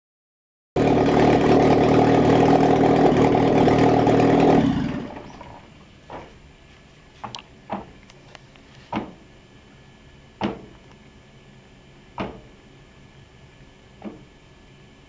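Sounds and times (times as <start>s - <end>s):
car engine running: 0.8s - 11.2s
engine noise: 0.8s - 15.0s
short knock: 8.9s - 9.2s, 10.4s - 10.7s, 12.2s - 12.5s.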